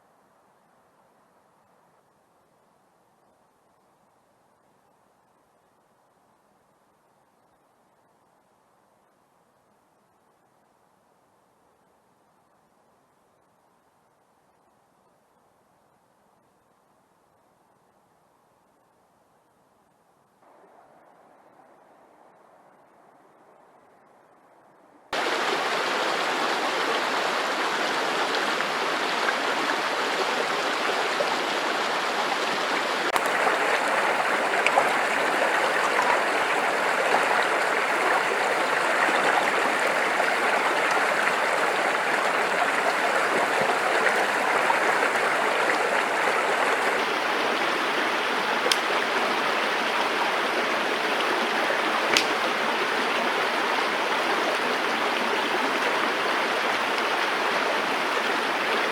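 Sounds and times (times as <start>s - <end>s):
stream rushing over rocks: 25.2s - 58.9s.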